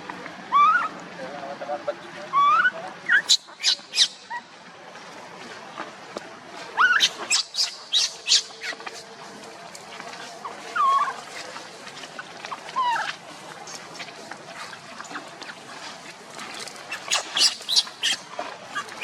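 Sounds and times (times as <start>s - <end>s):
monkey squealing: 0.5s - 0.9s, 2.3s - 4.4s, 6.8s - 8.8s, 10.7s - 11.2s, 16.9s - 18.2s.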